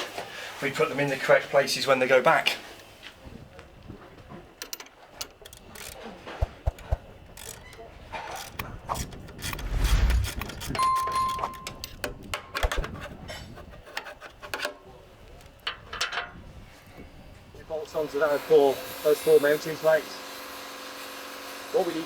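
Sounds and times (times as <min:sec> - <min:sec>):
tools clinking on metal parts: 0:04.6 - 0:09.6, 0:10.6 - 0:12.1, 0:15.6 - 0:16.4
low rumble: 0:09.4 - 0:11.6
short beep: 0:10.8 - 0:11.8.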